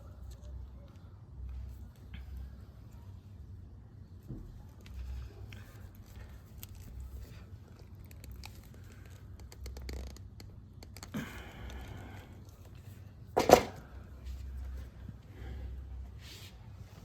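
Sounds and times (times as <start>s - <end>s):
wires clicking and rustling: 4.5s - 14.0s.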